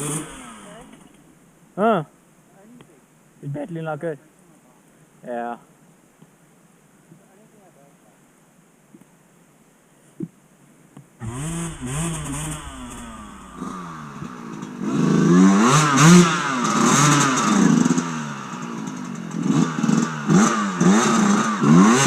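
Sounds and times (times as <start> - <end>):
dirt bike engine revving: 0.0 - 1.2, 11.2 - 22.0.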